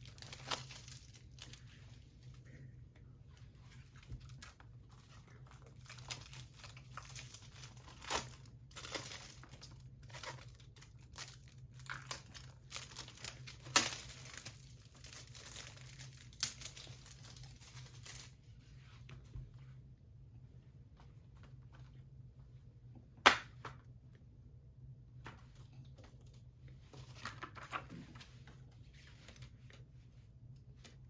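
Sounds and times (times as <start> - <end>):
plastic wrap crinkling and tearing: 0.0 - 1.9, 3.8 - 18.4.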